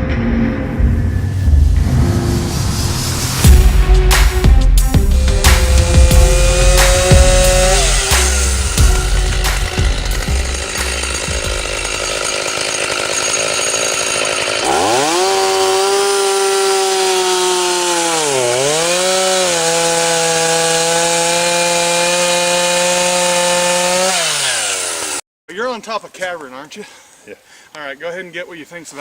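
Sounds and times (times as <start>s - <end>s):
music with low beat: 0.0s - 11.8s
chainsaw revving: 5.0s - 25.2s.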